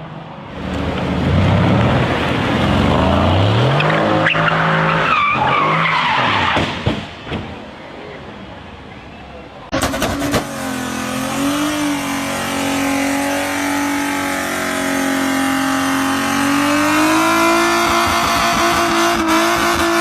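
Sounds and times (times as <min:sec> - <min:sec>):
car engine at high revs: 0:09.7 - 0:20.0.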